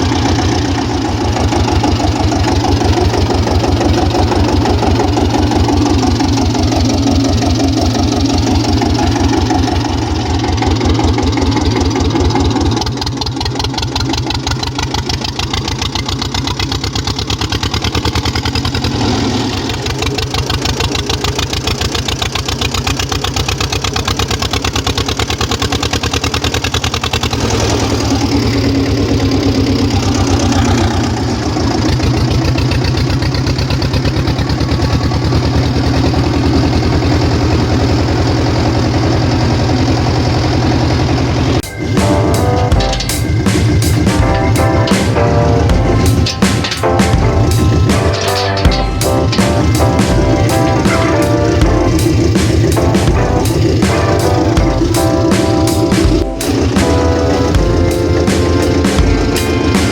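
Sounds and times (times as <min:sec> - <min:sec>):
tractor diesel engine chugging: 0:00.0 - 0:59.9.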